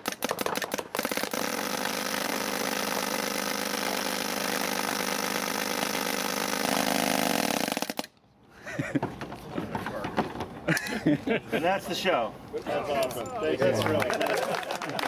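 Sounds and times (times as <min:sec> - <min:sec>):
paintball gun rapid fire: 0:00.0 - 0:08.1.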